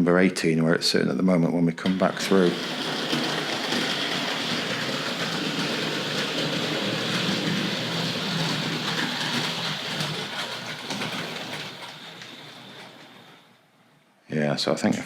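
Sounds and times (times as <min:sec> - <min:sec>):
model train wheels clicking on rails: 0:01.8 - 0:13.6
small electric motor whirring: 0:01.9 - 0:13.4.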